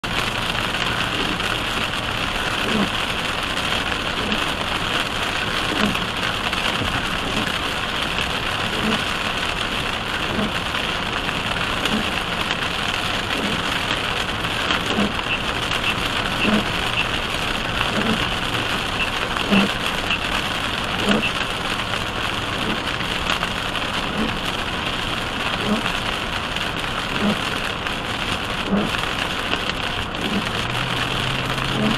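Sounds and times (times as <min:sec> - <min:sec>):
heavy rain on a car: 0:00.0 - 0:31.9
windshield wipers thumping: 0:05.6 - 0:07.6, 0:13.2 - 0:21.5.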